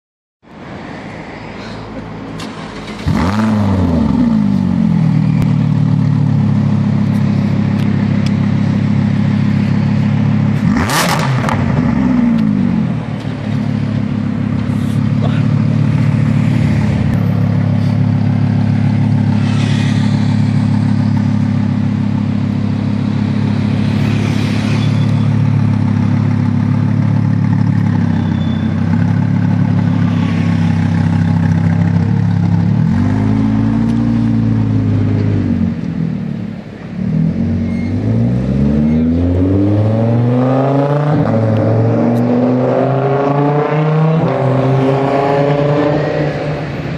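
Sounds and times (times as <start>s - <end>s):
engine revving: 2.4s - 5.0s, 10.6s - 13.0s, 29.4s - 35.9s, 37.0s - 46.9s
sports car engine idling: 4.2s - 10.7s, 11.9s - 23.8s, 25.0s - 32.9s
car accelerating through gears: 38.0s - 46.8s.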